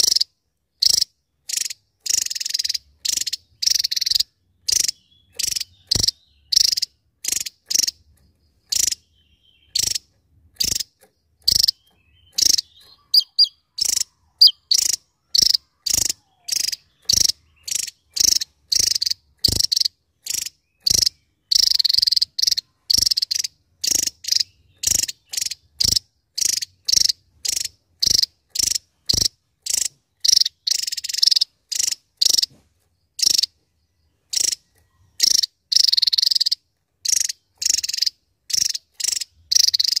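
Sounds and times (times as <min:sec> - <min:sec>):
bird singing high notes: 0:11.6 - 0:18.2.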